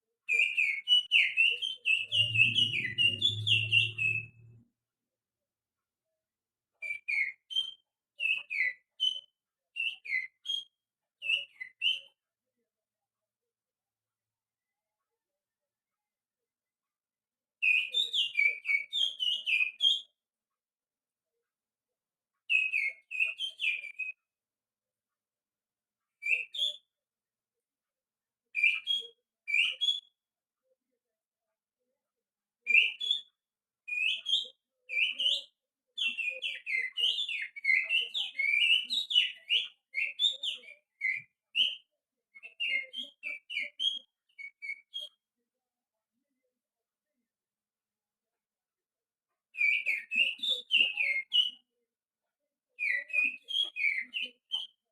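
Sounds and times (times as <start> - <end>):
finger whistling birdsong: 0.3 - 4.6.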